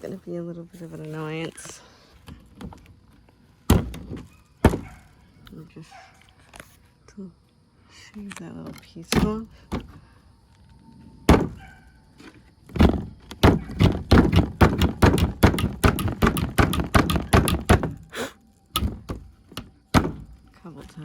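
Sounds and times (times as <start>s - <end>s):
rapid knocking on wood: 12.8s - 18.0s.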